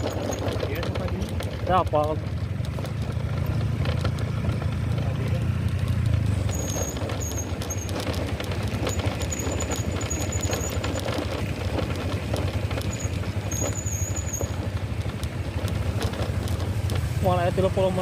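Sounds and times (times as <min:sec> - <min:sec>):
motorcycle engine rumble: 0:00.0 - 0:18.0
small clicks and rattles: 0:00.0 - 0:18.0
high-pitched squeaks: 0:06.4 - 0:12.0, 0:12.7 - 0:14.8.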